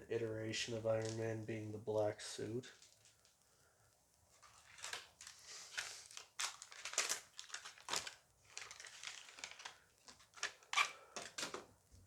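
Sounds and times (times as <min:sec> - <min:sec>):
foil pack crinkling: 0:00.9 - 0:01.2, 0:04.3 - 0:11.7.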